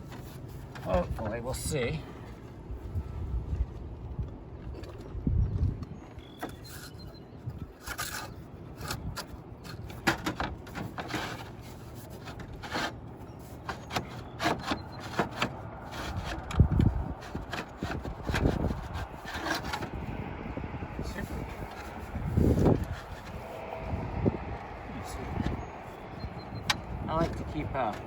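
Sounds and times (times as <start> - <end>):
slate scraping and clicking: 7.8 - 20.0.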